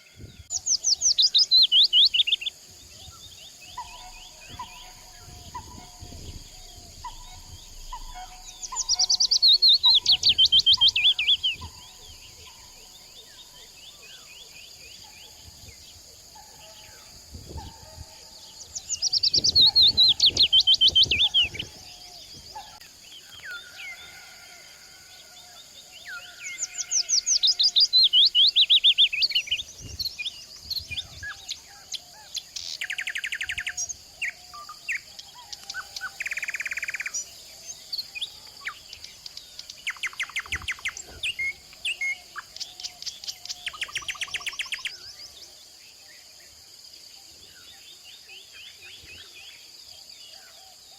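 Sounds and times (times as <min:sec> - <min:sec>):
birds singing: 0:00.0 - 0:50.9
rapid bird trills: 0:03.2 - 0:13.7.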